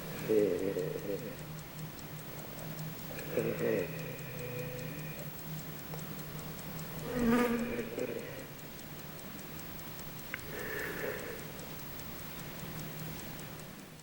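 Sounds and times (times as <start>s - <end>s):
fast even ticking: 0.0s - 14.0s
low steady hum: 0.0s - 14.0s.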